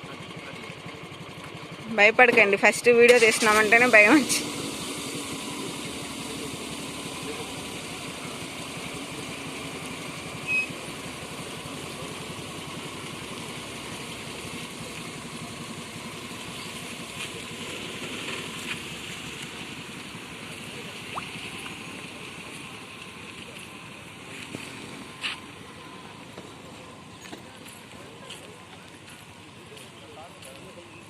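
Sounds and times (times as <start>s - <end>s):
car engine running: 0.0s - 31.0s
road noise: 0.0s - 31.0s
short high beep: 10.4s - 10.8s.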